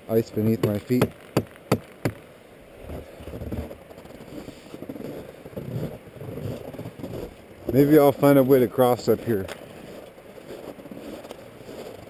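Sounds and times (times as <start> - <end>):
river rumbling: 0.0 - 12.0
footsteps crunching on snow: 2.8 - 12.0.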